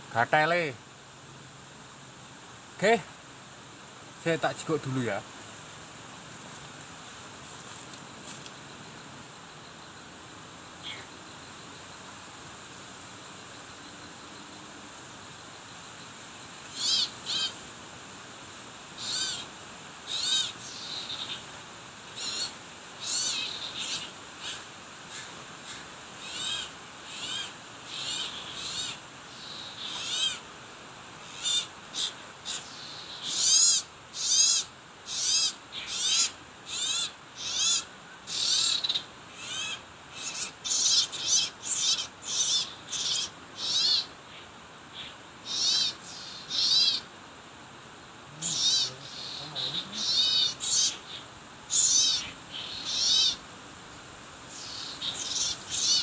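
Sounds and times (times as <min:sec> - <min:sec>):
high-pitched bird calls: 0:16.7 - 0:17.6, 0:19.0 - 0:19.4, 0:20.1 - 0:21.4, 0:22.2 - 0:30.4, 0:31.2 - 0:44.1, 0:45.0 - 0:47.1, 0:48.4 - 0:53.4, 0:54.5 - 0:56.0.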